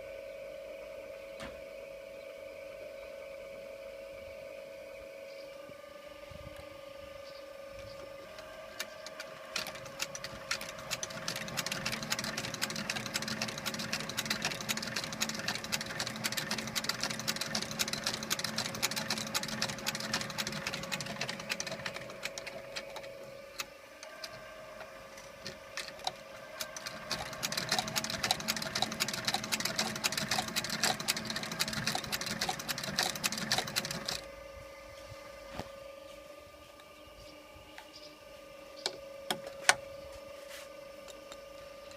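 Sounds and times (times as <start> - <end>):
motor hum: 0.0 - 41.9
sewing machine needle clatter: 8.4 - 23.1, 25.4 - 34.2.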